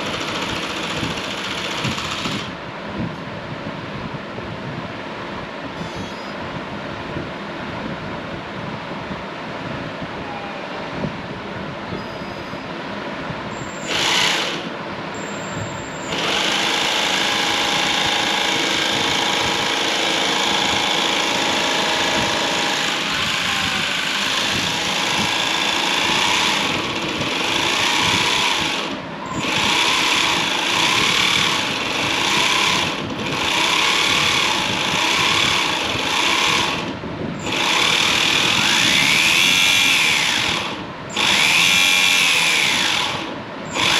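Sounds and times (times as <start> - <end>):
small electric motor running: 0.0 - 2.5, 13.8 - 14.7, 16.1 - 43.9.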